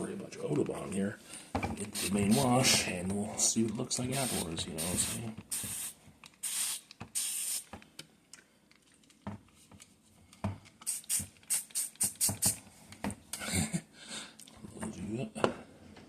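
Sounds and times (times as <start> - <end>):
spray bottle spritzes: 1.9 - 2.8, 4.1 - 7.8, 10.8 - 12.6.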